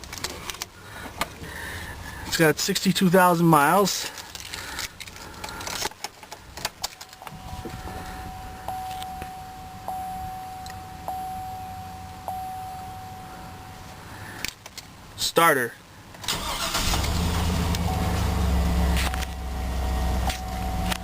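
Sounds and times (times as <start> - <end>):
steady low hum: 6.4 - 15.2, 17.3 - 21.0
warning chime dinging: 7.0 - 14.2, 17.9 - 21.0
engine cranking: 16.3 - 19.3.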